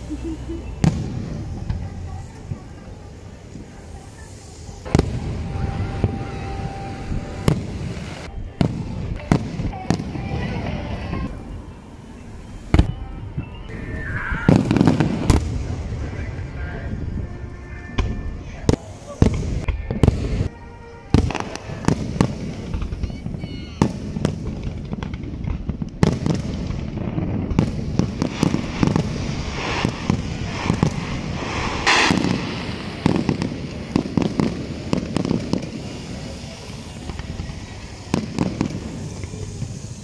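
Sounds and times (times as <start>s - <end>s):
fireworks bursting in sharp bangs: 0.0s - 11.5s, 14.1s - 16.3s, 18.0s - 40.0s.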